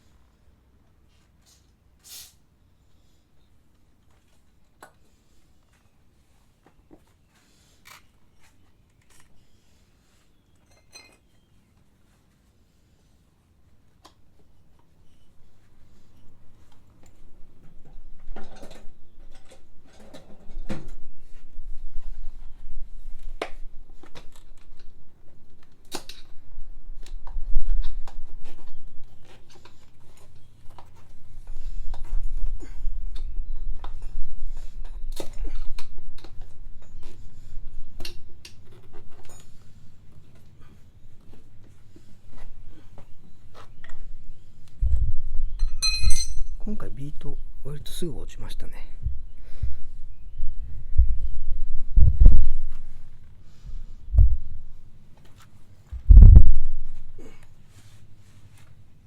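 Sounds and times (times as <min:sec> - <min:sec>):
hand tools clinking on metal: 0:45.6 - 0:46.6.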